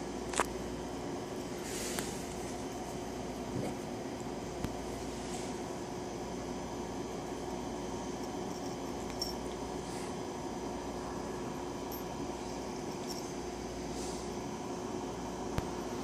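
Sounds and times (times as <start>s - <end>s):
steady room hum: 0.0s - 16.0s.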